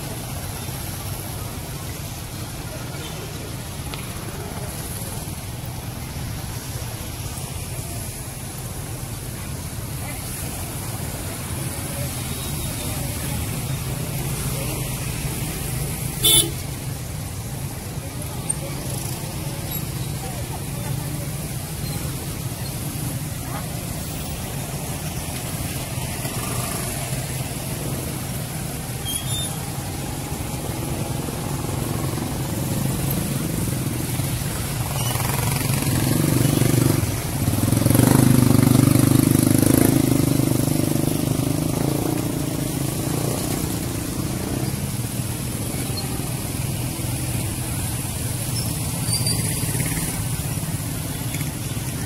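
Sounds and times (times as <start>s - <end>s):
road traffic: 0.0s - 52.0s
vehicle passing close: 20.2s - 51.9s.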